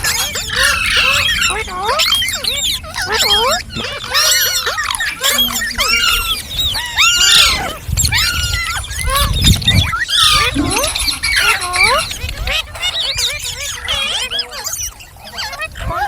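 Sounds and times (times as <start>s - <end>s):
parrot chirping and squawking: 0.0s - 16.0s.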